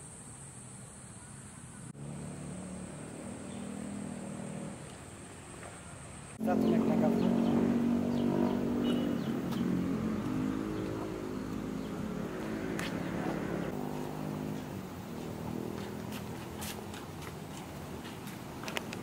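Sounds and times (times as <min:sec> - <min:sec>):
small motorcycle engine running: 0:06.4 - 0:16.9.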